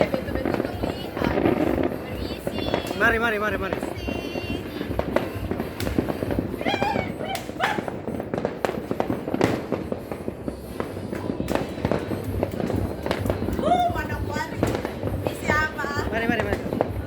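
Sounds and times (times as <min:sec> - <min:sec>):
fireworks crackling and banging: 0:00.0 - 0:17.0
people shouting: 0:06.5 - 0:08.0.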